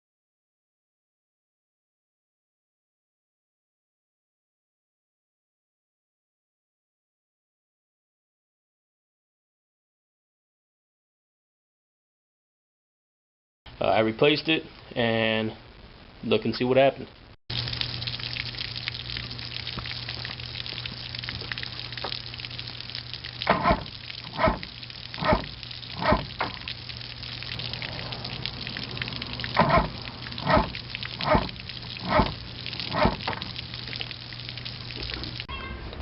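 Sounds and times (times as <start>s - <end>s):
outboard motor humming: 17.5s - 35.5s.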